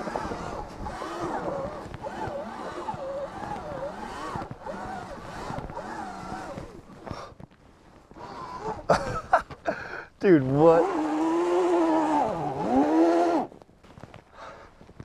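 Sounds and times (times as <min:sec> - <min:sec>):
electric motorbike motor whining: 0:00.0 - 0:07.4, 0:08.1 - 0:09.3, 0:10.3 - 0:13.6.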